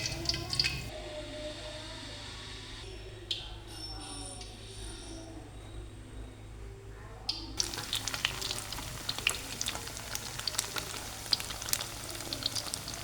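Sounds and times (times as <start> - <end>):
food sizzling in hot oil: 0.0 - 0.9, 7.6 - 13.0.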